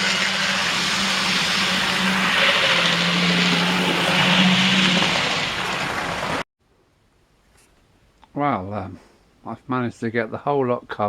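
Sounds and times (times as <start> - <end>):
machine running loudly: 0.0 - 6.4.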